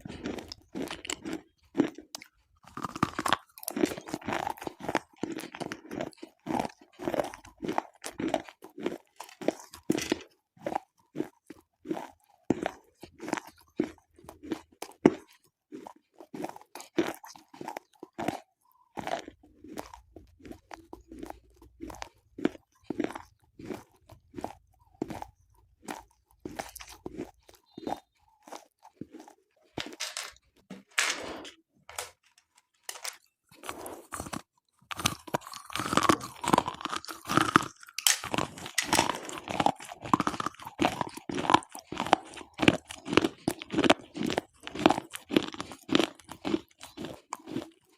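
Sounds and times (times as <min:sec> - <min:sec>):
slate pencils being crunched: 0:08.9 - 0:10.4, 0:29.7 - 0:45.8.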